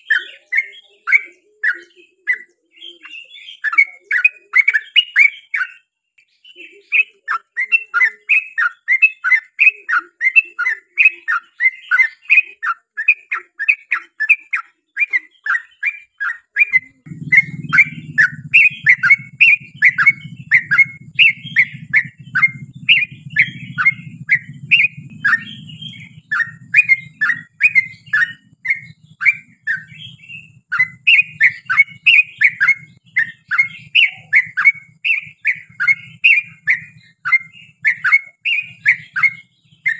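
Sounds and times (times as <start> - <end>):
bird singing chattering notes: 0.0 - 39.9
faint low rumble: 17.0 - 37.8.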